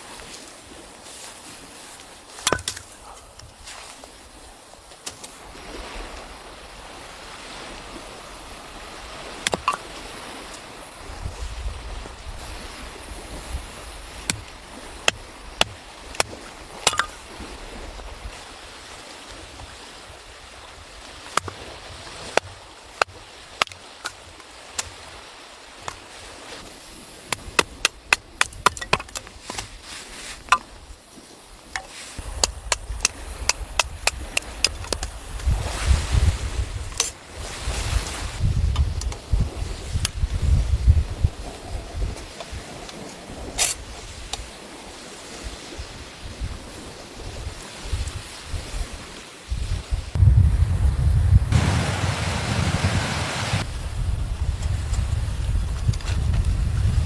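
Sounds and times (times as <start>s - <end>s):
sharp cracks and knocks: 2.3s - 3.5s, 14.2s - 17.3s, 21.1s - 25.1s, 27.3s - 30.9s, 31.6s - 35.6s, 36.8s - 37.2s
wind rumble on microphone: 5.4s - 23.2s, 31.6s - 57.0s.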